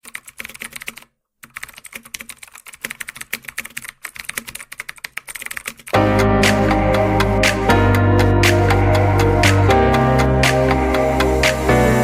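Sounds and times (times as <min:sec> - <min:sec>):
keyboard typing clicks: 0:00.0 - 0:06.8
loud music: 0:06.0 - 0:12.0.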